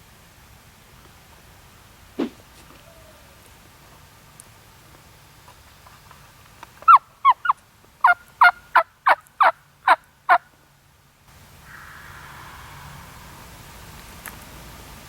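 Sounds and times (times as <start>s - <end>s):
turkey yelps: 11.7s - 13.4s.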